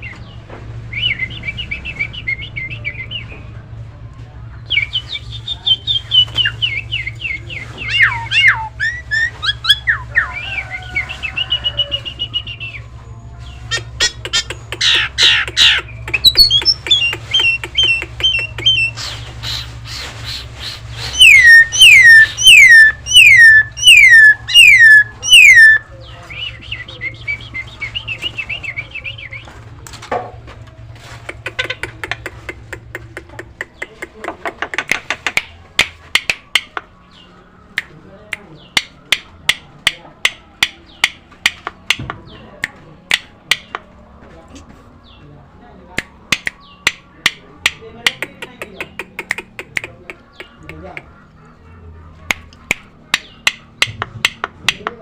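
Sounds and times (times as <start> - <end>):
myna whistles and chatter: 0.0 - 29.8, 45.9 - 54.9
falling whistled notes: 21.1 - 25.8.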